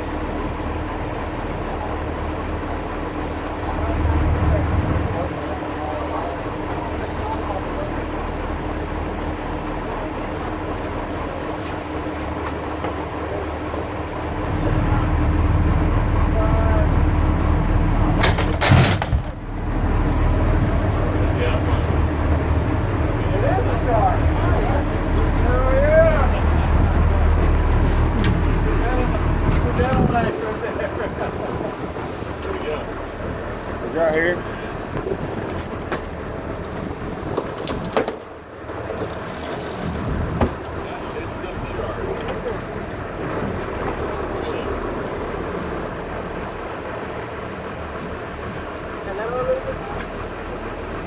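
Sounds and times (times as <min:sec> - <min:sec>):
boat engine droning: 0:00.0 - 0:51.0
wind on microphone: 0:26.3 - 0:30.5, 0:39.6 - 0:40.6.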